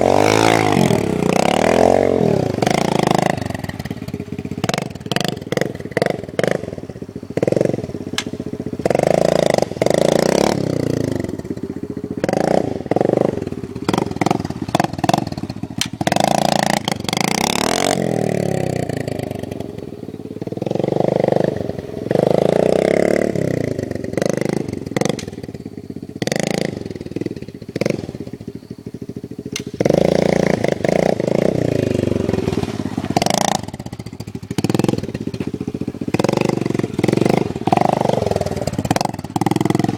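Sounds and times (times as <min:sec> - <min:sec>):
dirt bike engine revving: 0:00.0 - 0:39.9
sharp clicks: 0:15.8 - 0:16.0.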